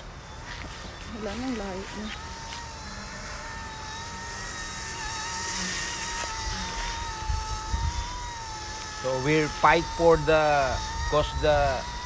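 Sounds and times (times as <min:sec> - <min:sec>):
rc helicopter motor whine: 0:00.0 - 0:12.0
wind buffeting microphone: 0:06.3 - 0:12.0.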